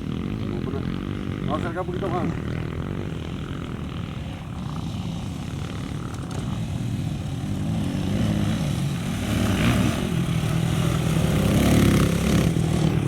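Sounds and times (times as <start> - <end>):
off-road motorcycle engine droning: 0.0 - 13.0.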